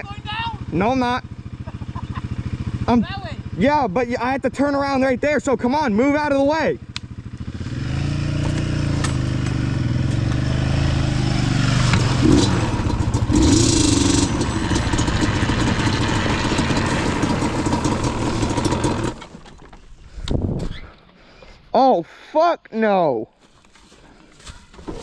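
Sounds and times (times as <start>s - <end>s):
quad engine running at low revs: 0.0s - 19.6s.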